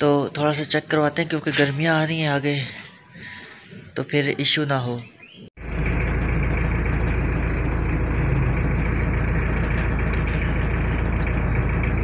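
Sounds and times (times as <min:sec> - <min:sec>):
car engine idling: 0:05.6 - 0:12.0.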